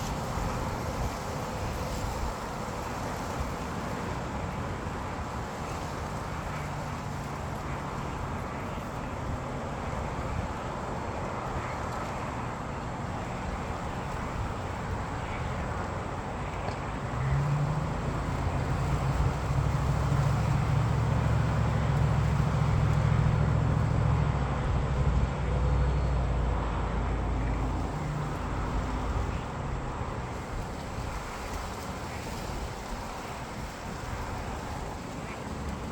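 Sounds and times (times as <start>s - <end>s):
low engine hum: 0.0s - 35.9s
traffic noise: 0.0s - 35.9s.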